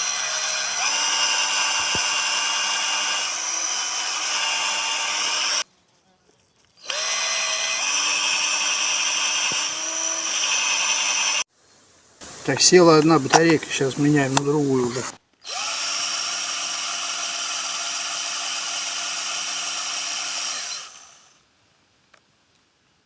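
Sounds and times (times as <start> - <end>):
drill motor whine: 0.0 - 5.6, 6.8 - 11.4, 15.5 - 21.3
stick grinding on wood: 0.0 - 5.7.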